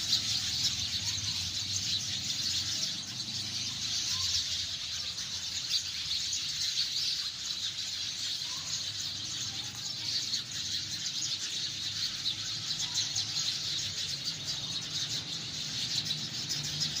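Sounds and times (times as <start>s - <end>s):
sparrows chirping: 0.0s - 17.0s.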